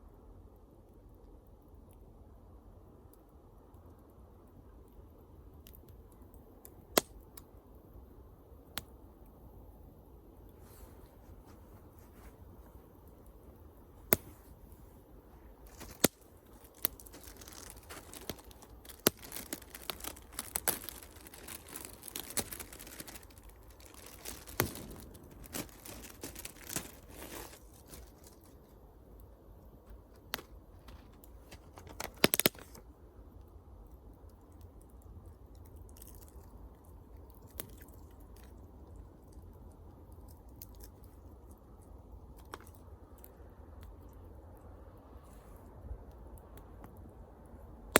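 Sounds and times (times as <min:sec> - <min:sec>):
wood fire crackling: 0:00.8 - 0:44.4
sharp pops from fire: 0:05.6 - 0:07.5, 0:15.6 - 0:28.3, 0:30.2 - 0:32.8.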